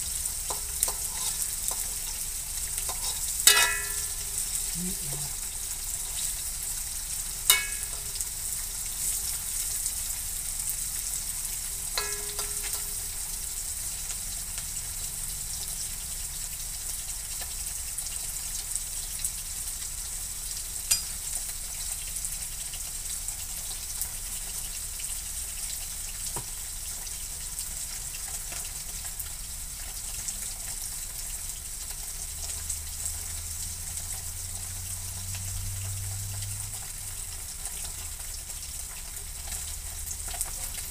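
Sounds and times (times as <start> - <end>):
food sizzling in hot oil: 0.0 - 40.9
metal spatula clinking on wok: 2.9 - 4.6, 7.5 - 8.3, 12.0 - 13.2, 20.9 - 21.4.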